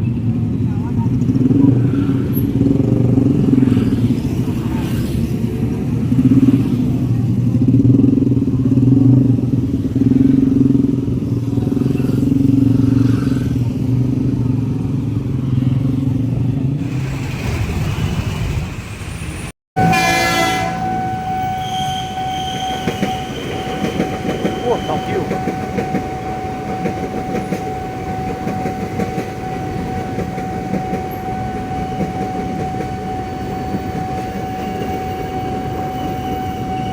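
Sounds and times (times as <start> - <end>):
sustained horn-like tone: 19.8 - 23.9.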